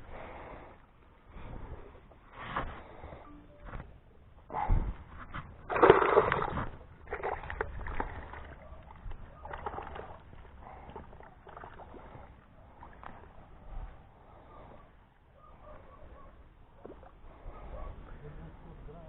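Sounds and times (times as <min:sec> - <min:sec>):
water sloshing and splashing: 0:05.1 - 0:14.0, 0:16.6 - 0:17.5.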